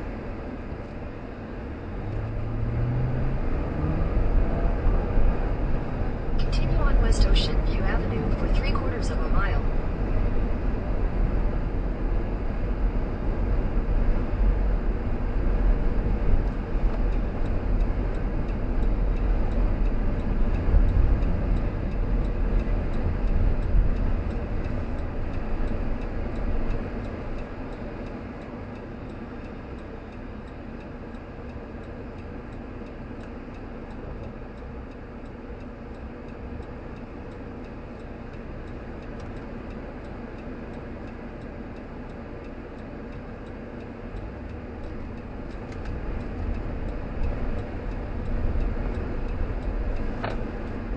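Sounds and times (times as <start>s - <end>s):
car road and engine rumble: 0.0s - 50.9s
faint regular ticking: 4.2s - 11.7s, 12.3s - 50.9s.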